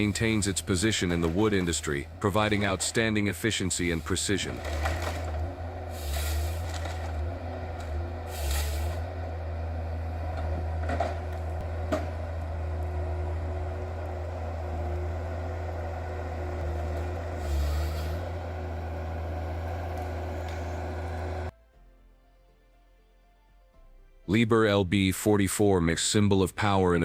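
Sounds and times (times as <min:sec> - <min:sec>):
diesel engine droning: 0:00.0 - 0:21.5.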